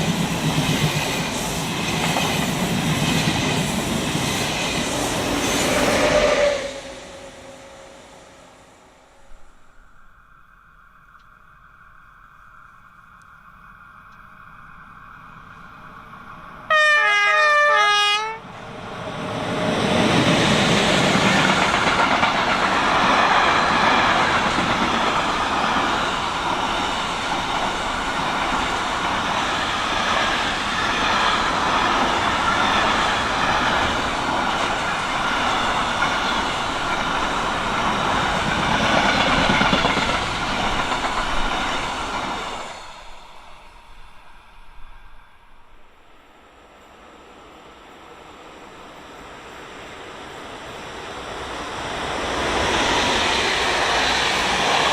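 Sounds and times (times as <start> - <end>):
train wheels rolling on rails: 0.0 - 16.8, 18.4 - 54.9
train horn: 5.6 - 8.4, 16.7 - 18.5.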